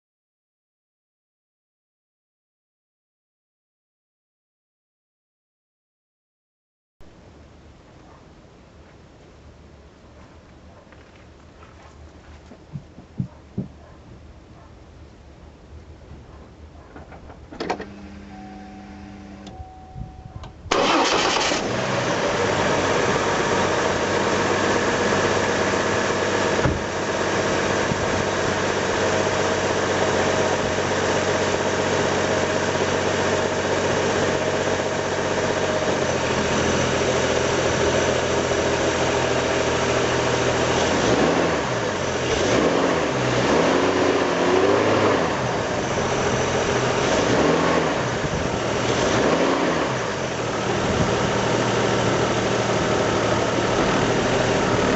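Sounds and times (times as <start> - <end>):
car engine starting and idling: 16.8 - 54.9
engine revving: 20.7 - 28.0, 35.9 - 54.9.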